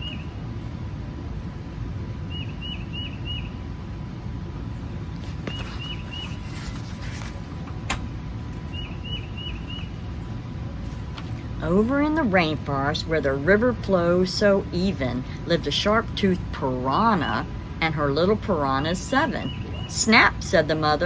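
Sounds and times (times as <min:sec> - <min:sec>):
low background rumble: 0:00.0 - 0:21.0
bird chirping: 0:02.3 - 0:03.6, 0:05.3 - 0:06.8, 0:08.6 - 0:10.4.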